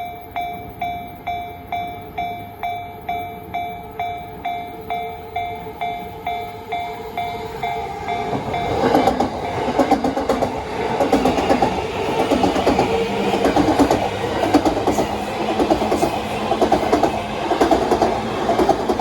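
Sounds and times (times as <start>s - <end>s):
level crossing warning bell: 0.0s - 19.0s
train wheels clattering over rail joints: 8.2s - 19.0s.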